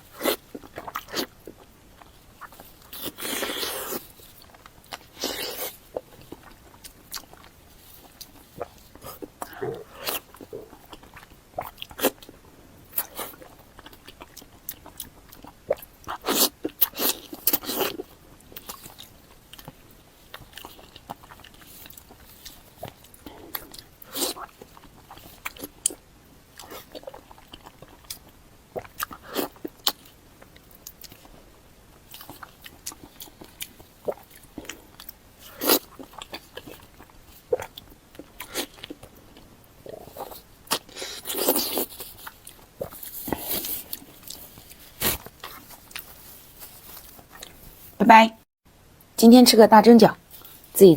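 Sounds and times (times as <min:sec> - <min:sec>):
person chewing food: 0:00.0 - 0:48.0.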